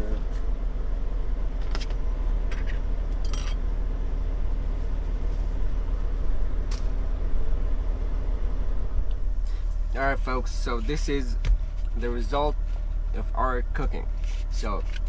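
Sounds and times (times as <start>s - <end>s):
truck engine idling: 0.0s - 15.0s
tableware clinking: 3.2s - 3.6s.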